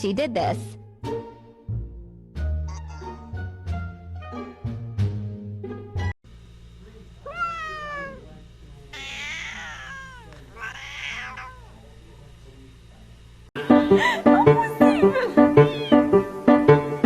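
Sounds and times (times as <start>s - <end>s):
cat meowing: 2.7s - 3.3s, 7.2s - 8.2s, 8.9s - 11.8s, 14.8s - 16.2s.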